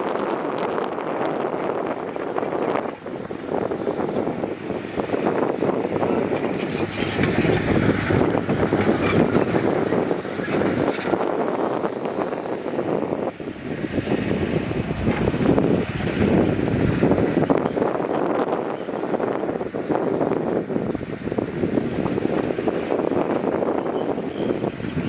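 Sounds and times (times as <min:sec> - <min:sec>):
diesel machinery running: 0:01.6 - 0:13.8.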